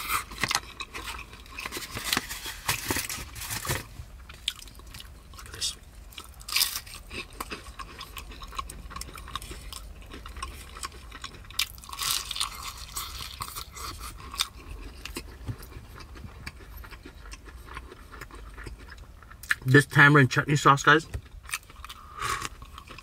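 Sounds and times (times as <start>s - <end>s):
person chewing: 0.0s - 19.7s, 21.2s - 23.0s.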